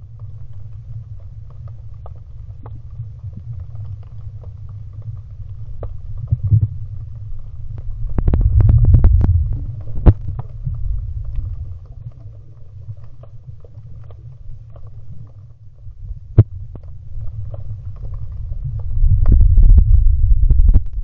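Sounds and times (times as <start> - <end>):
underwater water rumble: 0.0 - 21.0.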